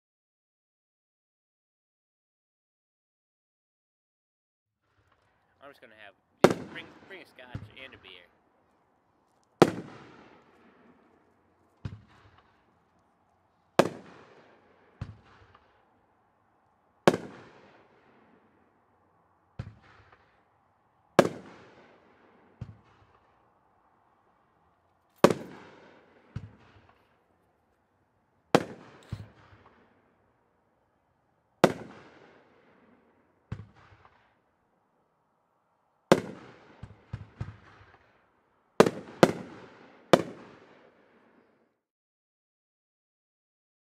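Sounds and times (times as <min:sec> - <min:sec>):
firework bangs: 0:05.7 - 0:08.3, 0:09.5 - 0:13.1, 0:13.7 - 0:16.1, 0:17.0 - 0:18.7, 0:19.5 - 0:20.5, 0:21.2 - 0:23.4, 0:25.2 - 0:27.3, 0:28.5 - 0:30.1, 0:31.6 - 0:34.4, 0:36.1 - 0:38.2, 0:38.8 - 0:41.5
soft firework pops: 0:09.3 - 0:13.1, 0:13.8 - 0:15.8, 0:25.2 - 0:27.2, 0:28.6 - 0:29.9, 0:33.5 - 0:34.4, 0:36.1 - 0:38.2.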